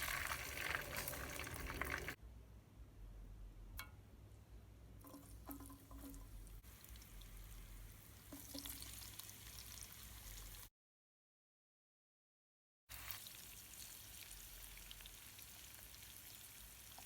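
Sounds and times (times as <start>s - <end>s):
food sizzling in a pot: 0.0s - 2.2s, 6.7s - 10.7s, 12.9s - 17.0s.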